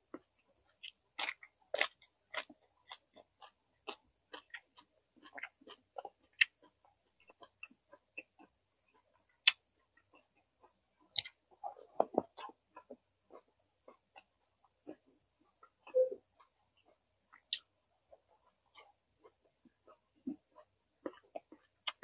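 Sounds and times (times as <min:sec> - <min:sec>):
chewing with wet mouth clicks: 0:00.2 - 0:22.0
crunching vegetables: 0:00.8 - 0:08.5.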